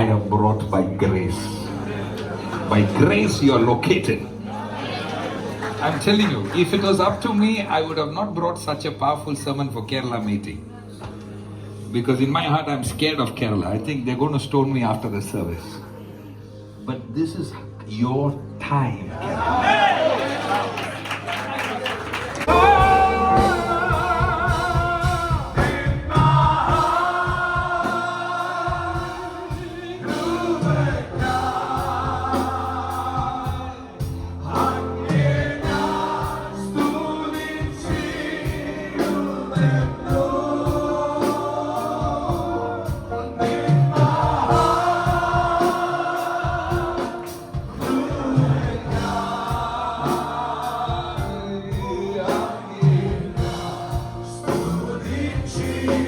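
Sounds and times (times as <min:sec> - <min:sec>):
choir singing gospel: 0:00.0 - 0:08.1, 0:18.5 - 0:56.0
band with steady beat: 0:22.5 - 0:56.0.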